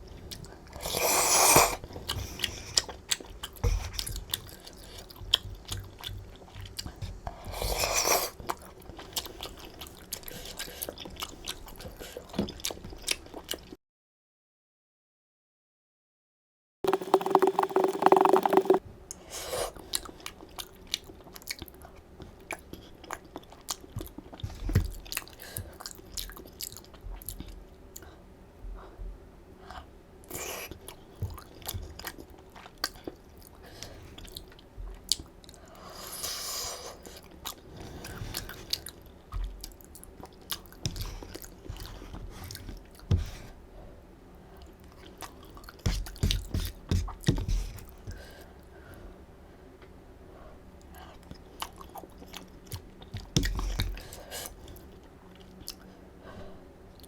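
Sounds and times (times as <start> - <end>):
chewing noodles: 0.1 - 13.8, 16.9 - 18.8, 30.3 - 43.1
wet mouth clicks and smacks: 16.9 - 18.8.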